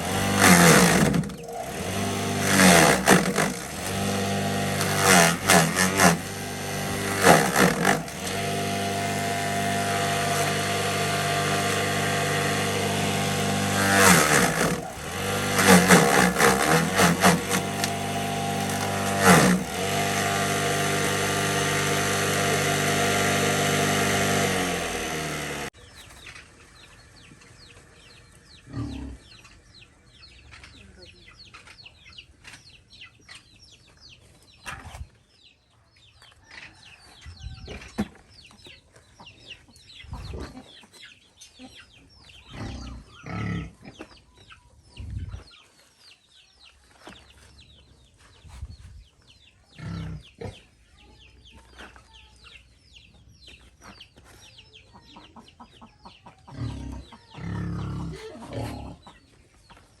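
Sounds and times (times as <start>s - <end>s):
chickens clucking: 25.8s - 60.0s.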